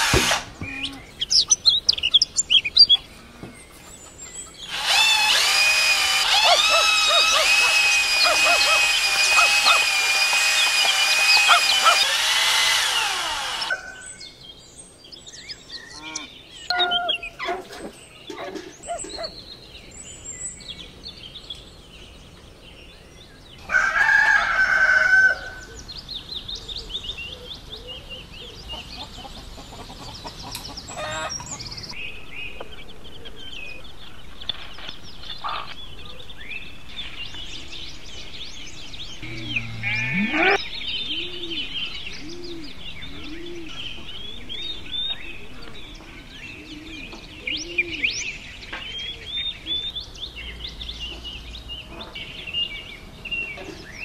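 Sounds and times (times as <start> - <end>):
cordless drill spinning tube on pad: 0.0 - 0.5, 4.7 - 13.9
small birds chirping: 0.0 - 23.6, 25.8 - 54.0
rooster crowing: 23.7 - 25.6, 39.2 - 40.6
hens clucking: 39.2 - 40.6.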